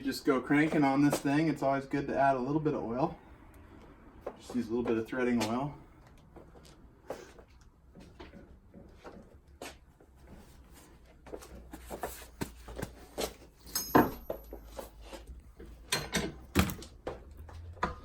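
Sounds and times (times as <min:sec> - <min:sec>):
metal tools clicking and clinking: 0:13.6 - 0:14.5, 0:15.9 - 0:16.4
sharp metallic clank: 0:13.6 - 0:14.6.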